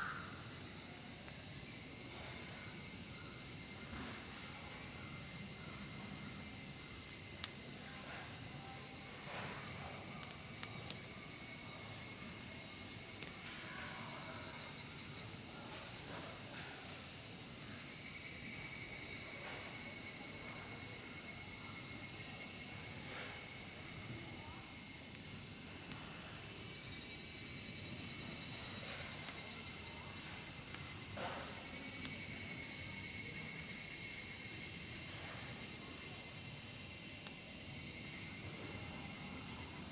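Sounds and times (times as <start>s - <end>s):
insects chirring: 0.0s - 39.9s
wood fire crackling: 9.6s - 11.2s.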